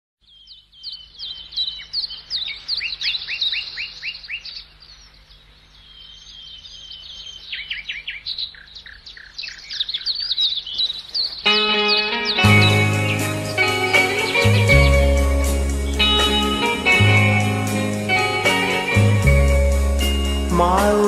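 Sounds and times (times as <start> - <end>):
songbirds chirping: 0.2 - 21.0
bird downward-sweeping notes: 5.8 - 21.0.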